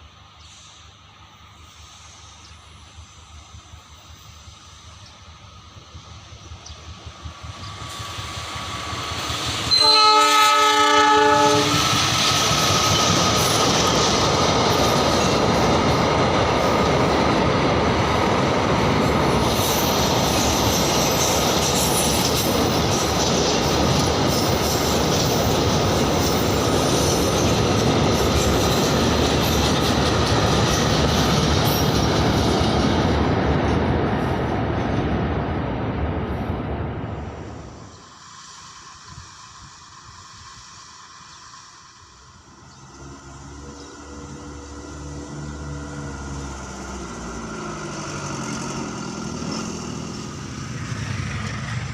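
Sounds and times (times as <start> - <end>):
train rumble and wheel clatter: 0.0 - 51.9
train horn: 9.7 - 11.9, 42.9 - 46.0.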